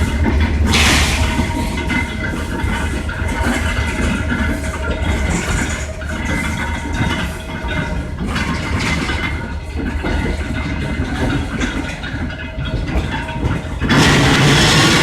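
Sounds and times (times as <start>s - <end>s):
train engine rumbling: 0.0s - 15.0s.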